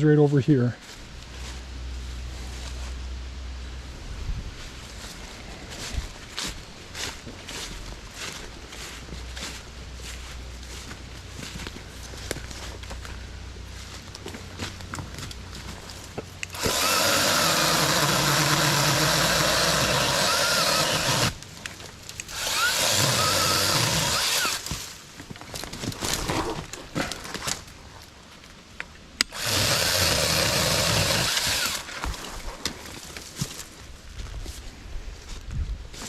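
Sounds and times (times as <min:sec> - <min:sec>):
cordless chainsaw cutting branches: 0:16.4 - 0:21.4, 0:22.1 - 0:24.9, 0:29.2 - 0:32.2.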